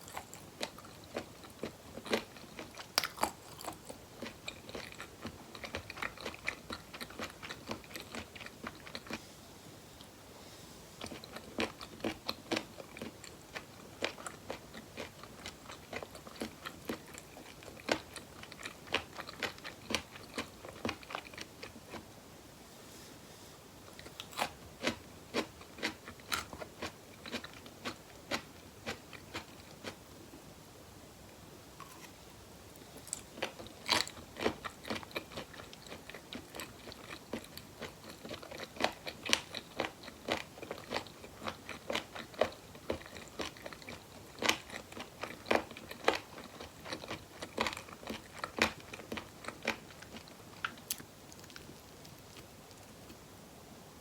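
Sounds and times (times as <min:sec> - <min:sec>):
person chewing food: 0:00.0 - 0:09.2, 0:11.0 - 0:22.0, 0:23.9 - 0:30.0, 0:31.8 - 0:32.2, 0:32.8 - 0:53.2.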